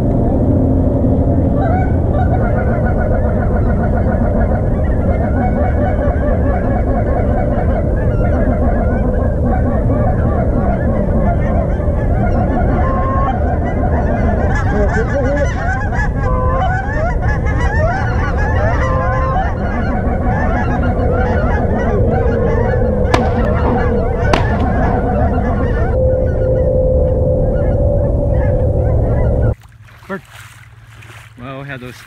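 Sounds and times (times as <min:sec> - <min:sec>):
steady low rumble: 0:00.0 - 0:32.0
flock of geese honking: 0:01.5 - 0:29.6
shotgun shots: 0:23.1 - 0:25.8.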